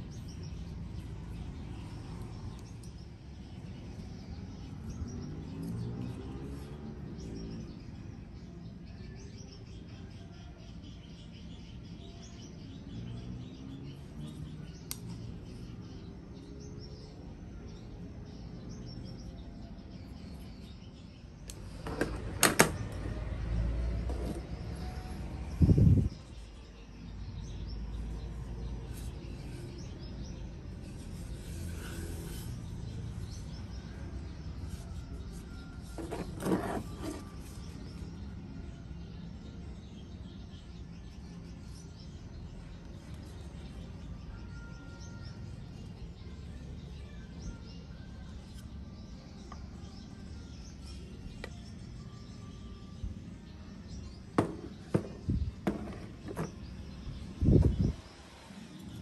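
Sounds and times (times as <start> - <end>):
birds chirping: 47.0 - 59.0.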